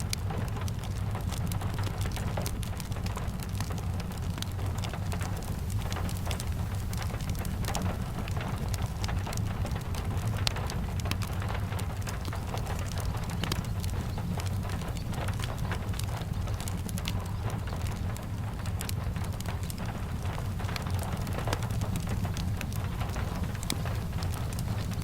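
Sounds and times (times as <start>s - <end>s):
fireplace crackling: 0.0s - 25.0s
steady rain: 0.0s - 25.0s.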